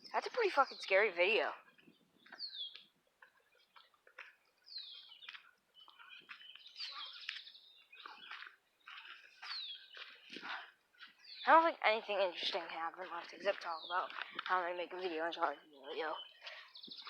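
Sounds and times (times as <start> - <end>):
faint bird chirps: 1.6 - 11.5.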